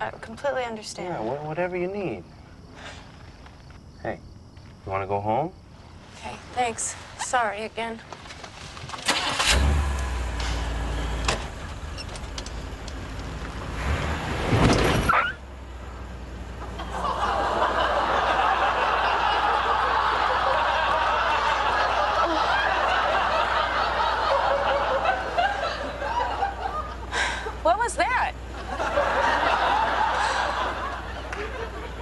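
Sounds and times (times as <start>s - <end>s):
car engine revving: 9.1s - 17.0s
audience laughing: 16.6s - 27.6s, 28.5s - 32.0s.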